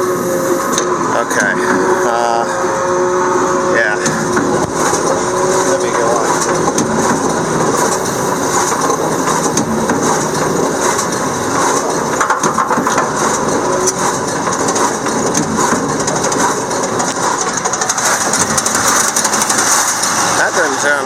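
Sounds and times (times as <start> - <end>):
tractor engine running: 0.0 - 21.0
baler clattering and knocking: 4.0 - 20.5.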